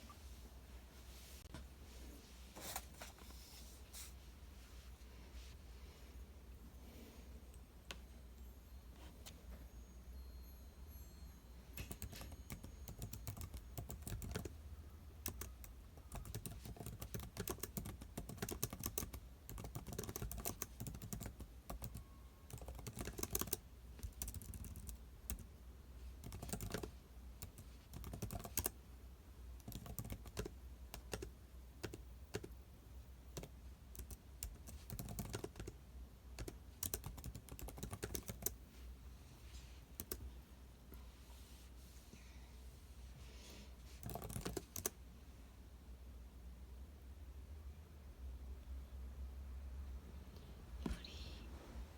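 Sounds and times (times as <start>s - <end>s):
low steady hum: 0.0s - 51.9s
typing on computer keyboard: 11.8s - 14.6s, 15.2s - 25.5s, 26.2s - 28.8s, 29.6s - 32.6s, 33.3s - 35.8s, 36.4s - 38.6s, 44.0s - 45.0s.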